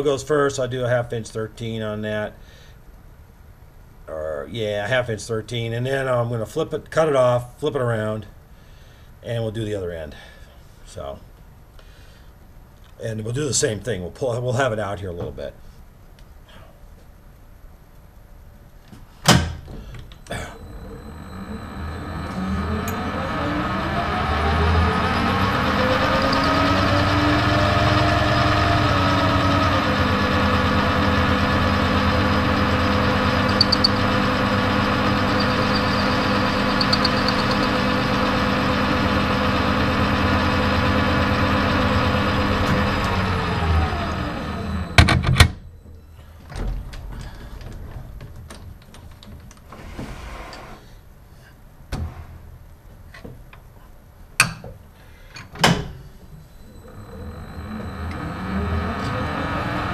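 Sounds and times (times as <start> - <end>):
metal lathe motor whining: 20.3 - 45.4, 56.6 - 59.9.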